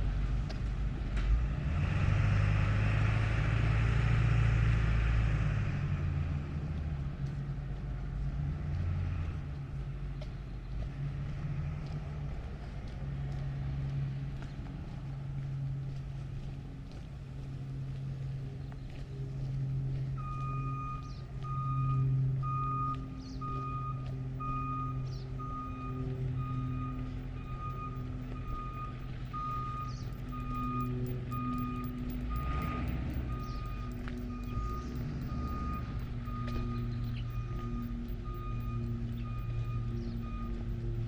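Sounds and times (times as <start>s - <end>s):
truck engine running: 12.0s - 41.0s
reversing alarm beeping: 19.8s - 41.0s.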